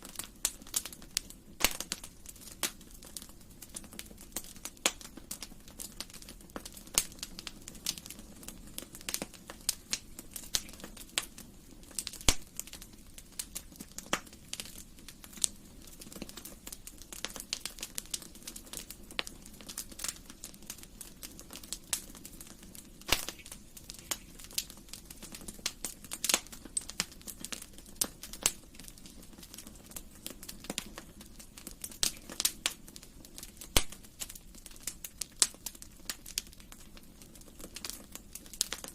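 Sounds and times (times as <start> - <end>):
wood fire crackling and popping: 0.0 - 38.9
flames hissing: 0.1 - 36.4.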